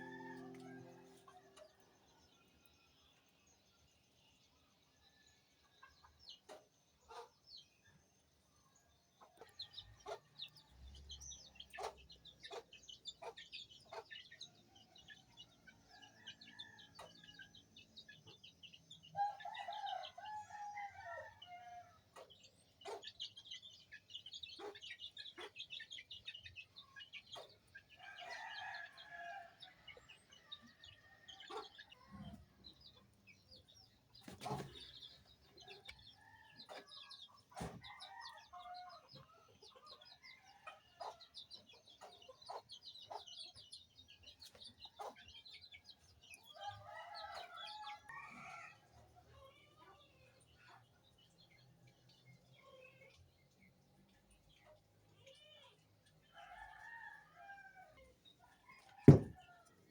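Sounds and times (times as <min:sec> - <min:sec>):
rooster crowing: 0:00.0 - 0:01.6
chickens clucking: 0:06.1 - 0:07.4, 0:09.2 - 0:10.7, 0:11.4 - 0:15.8, 0:22.1 - 0:29.2, 0:29.8 - 0:51.4.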